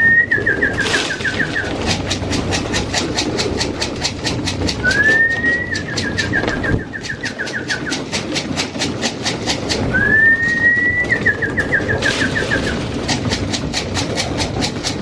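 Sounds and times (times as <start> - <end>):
bird whistled call: 0.0 - 1.7, 4.8 - 8.0, 9.9 - 12.8
beaks pecking grain: 0.3 - 14.4.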